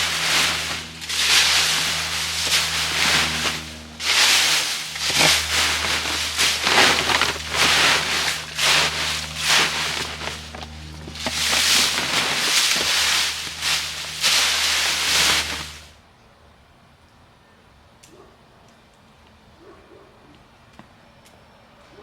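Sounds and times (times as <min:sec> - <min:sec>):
dry leaves rustling and crunching: 0:00.0 - 0:16.0
steady low hum: 0:00.0 - 0:16.0.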